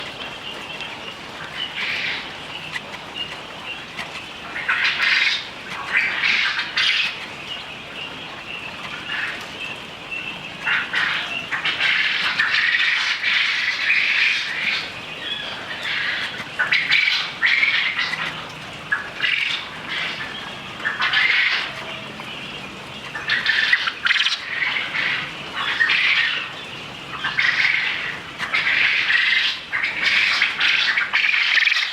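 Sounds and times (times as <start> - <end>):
quail calling: 0.0 - 31.9.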